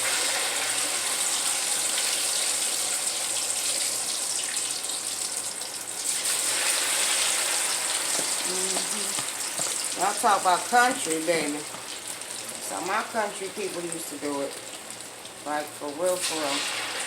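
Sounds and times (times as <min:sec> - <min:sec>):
batter sizzling in hot grease: 0:00.0 - 0:17.0.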